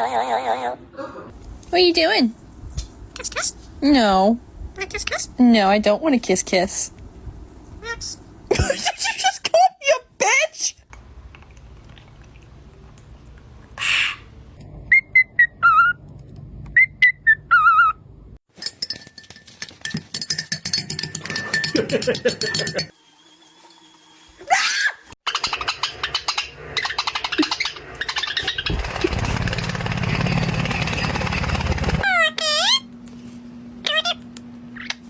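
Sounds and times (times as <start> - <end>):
parrot whistling: 14.9 - 16.0, 16.7 - 18.0.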